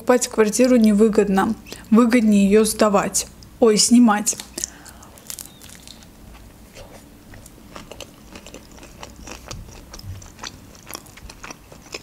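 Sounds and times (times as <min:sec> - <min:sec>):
chewing with mouth clicks: 0:04.4 - 0:12.0.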